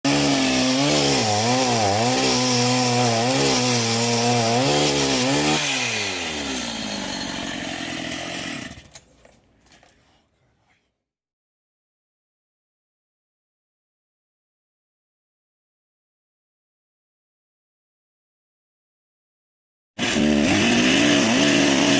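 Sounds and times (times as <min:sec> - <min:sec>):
chainsaw cutting wood: 0:00.1 - 0:09.1, 0:20.0 - 0:21.9.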